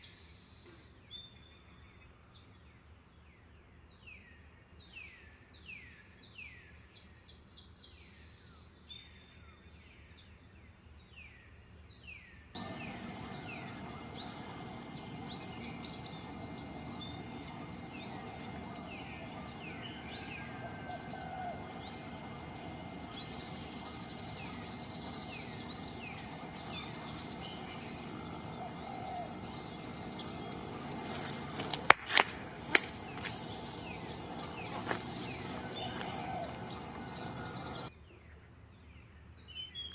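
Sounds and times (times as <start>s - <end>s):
bird falling calls: 12.6s - 37.9s
bird rising whistles: 12.6s - 37.9s
sharp clicks: 12.6s - 37.9s
steady high buzz: 12.6s - 37.9s
steady hiss: 12.6s - 37.9s.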